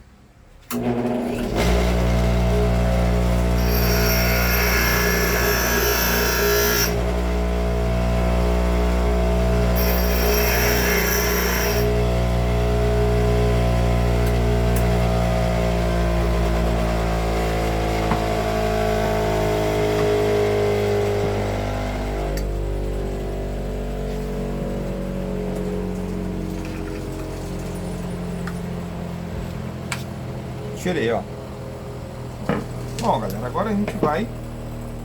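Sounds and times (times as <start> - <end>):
bench grinder running: 0.8 - 20.1
gritty grinding contact: 3.6 - 7.0.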